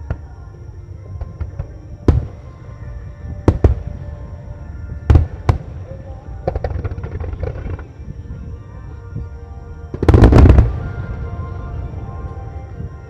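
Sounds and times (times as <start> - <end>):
music: 0.0 - 13.0
firework crackling pops: 6.4 - 7.9
firework booms: 9.9 - 12.9.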